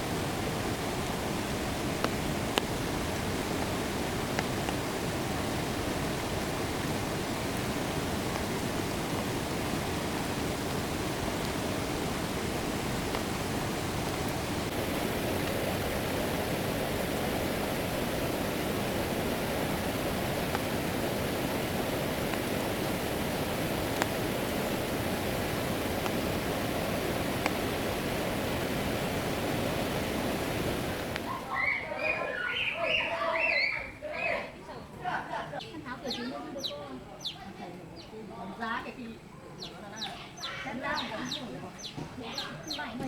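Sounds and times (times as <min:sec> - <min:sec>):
flowing water rushing: 0:00.0 - 0:34.4.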